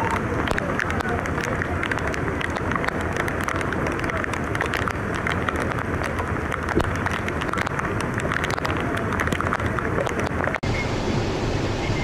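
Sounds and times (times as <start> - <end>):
rain drops ticking: 0.0 - 10.7
heavy rain falling: 0.0 - 12.0
low wind rumble: 0.0 - 12.0.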